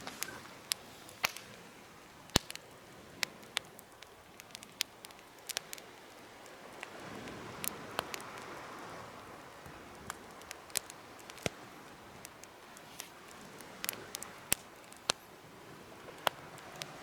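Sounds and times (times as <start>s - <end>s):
soft hiss: 0.0s - 17.0s
wood fire crackling: 0.0s - 17.0s.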